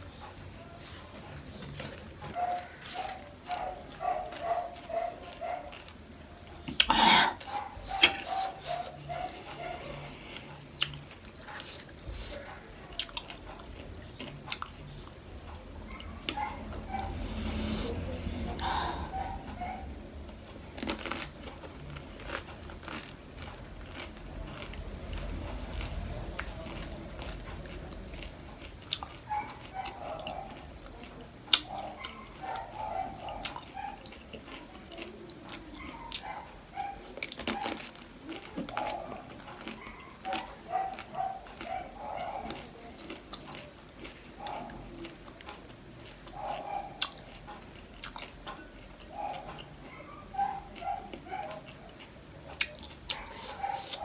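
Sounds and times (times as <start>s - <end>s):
chewing crunchy food: 0.0s - 54.0s
wet mouth sounds: 6.7s - 10.0s, 17.0s - 19.4s.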